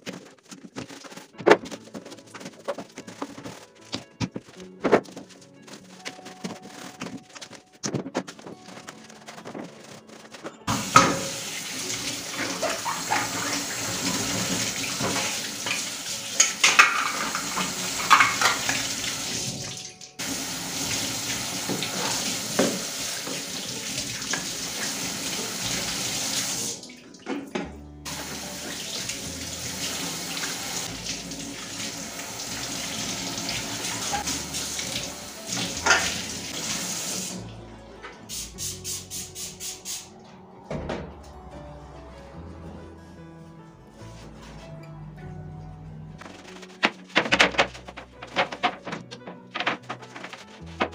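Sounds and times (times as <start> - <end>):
knocks and clatters: 0.0 - 11.4, 46.2 - 50.9
tap running into sink: 10.7 - 26.7, 28.1 - 37.3.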